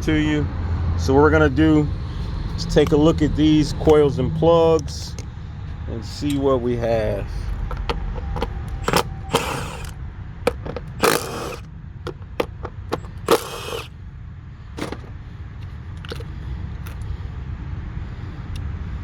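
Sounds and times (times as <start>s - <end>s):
steady low rumble: 0.0s - 19.0s
hand tools clicking and clunking: 7.6s - 9.9s, 10.5s - 13.9s, 14.8s - 15.2s.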